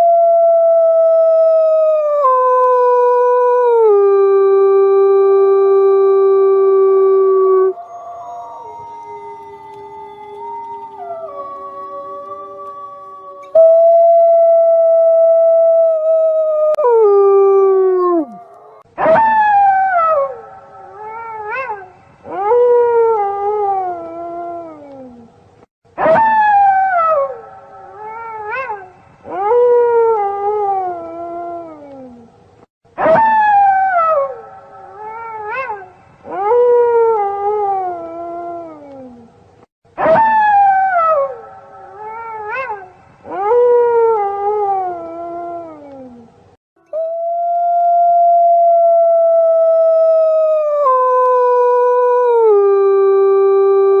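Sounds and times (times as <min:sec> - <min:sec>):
wolves howling: 0:06.7 - 0:22.5.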